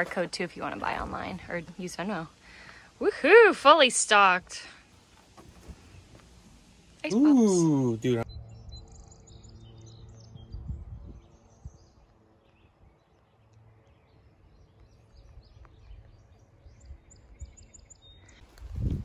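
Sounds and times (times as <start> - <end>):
faint birdsong: 0.0 - 18.9
low wind rumble: 8.0 - 13.1, 14.0 - 19.0.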